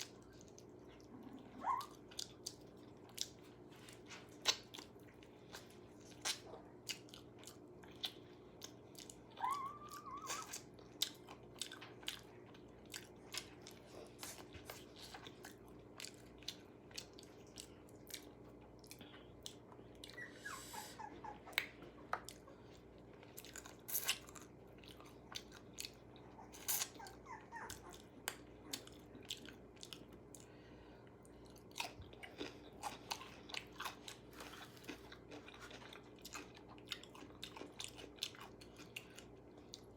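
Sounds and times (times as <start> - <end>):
crunchy chewing: 0.0 - 20.6, 21.2 - 39.9.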